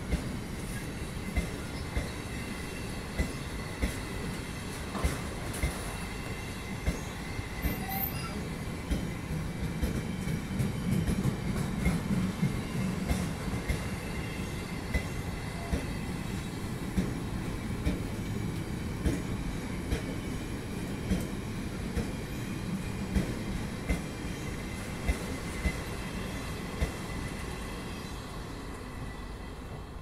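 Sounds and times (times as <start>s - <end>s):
faint wheel squeal: 7.6s - 8.5s.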